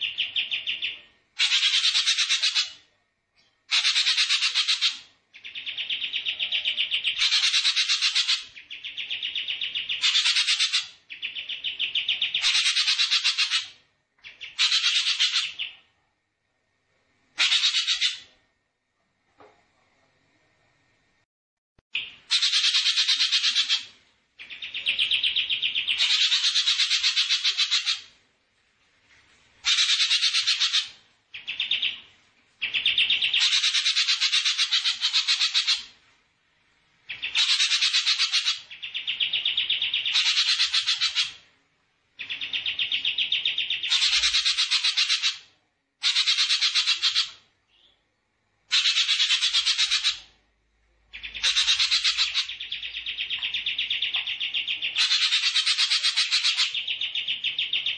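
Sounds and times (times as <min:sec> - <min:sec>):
buzzy bird trills: 0:00.0 - 0:02.8, 0:03.7 - 0:15.8, 0:17.4 - 0:18.3, 0:22.0 - 0:28.2, 0:29.6 - 0:32.0, 0:32.6 - 0:35.9, 0:37.1 - 0:41.4, 0:42.2 - 0:47.9, 0:48.7 - 0:50.3, 0:51.1 - 0:57.9.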